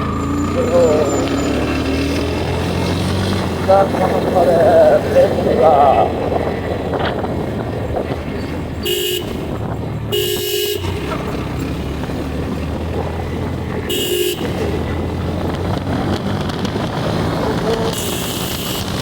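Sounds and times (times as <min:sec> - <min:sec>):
vehicle horn honking: 0:00.0 - 0:06.4, 0:08.8 - 0:12.2, 0:13.4 - 0:15.4, 0:17.9 - 0:19.0
low road noise: 0:00.0 - 0:19.0.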